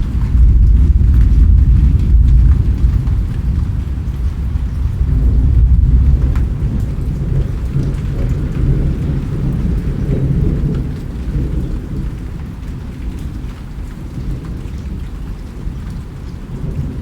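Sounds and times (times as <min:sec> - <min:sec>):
rain falling: 0:00.0 - 0:17.0
rolling rumble of thunder: 0:00.0 - 0:17.0.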